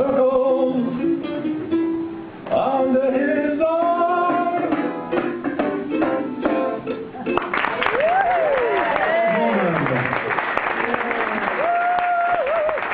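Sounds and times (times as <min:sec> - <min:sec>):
ukulele strumming: 0:00.0 - 0:07.8.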